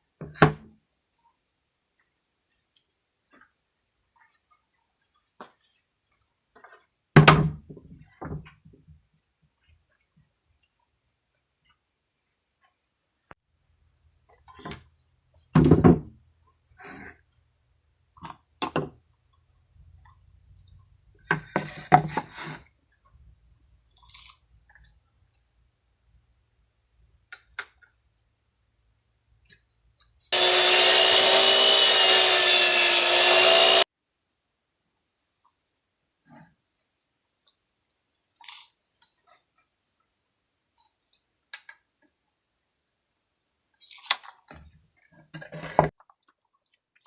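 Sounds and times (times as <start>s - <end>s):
crickets chirping: 0.8s - 30.3s, 33.9s - 47.0s
electric power tool running: 30.3s - 33.9s.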